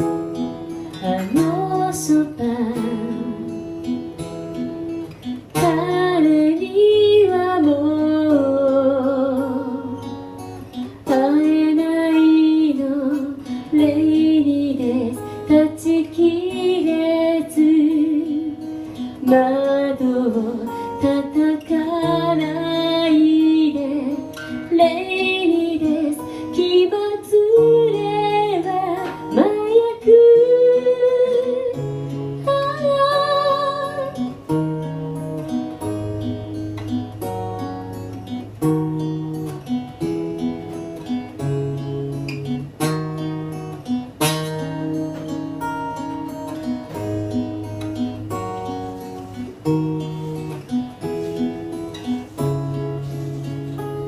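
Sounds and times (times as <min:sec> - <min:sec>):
acoustic guitar: 0:00.0 - 0:54.0
woman singing a slow ballad: 0:00.9 - 0:03.9, 0:05.5 - 0:36.0.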